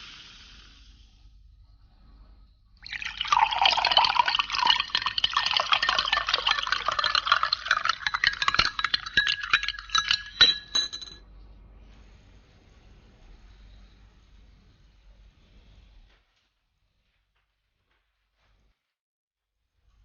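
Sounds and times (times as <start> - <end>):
glass clinking: 2.8 - 11.2
liquid pouring into a glass: 2.8 - 11.2.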